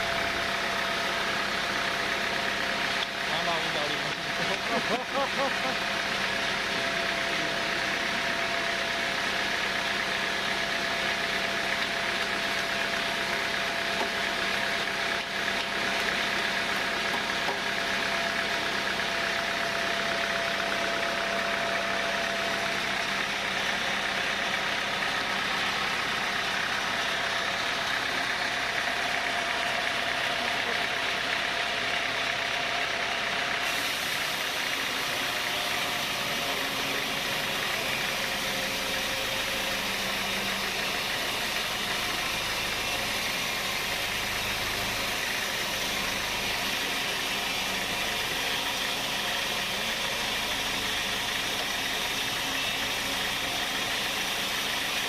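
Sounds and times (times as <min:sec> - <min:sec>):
sawmill saw whining: 0:00.0 - 0:55.0.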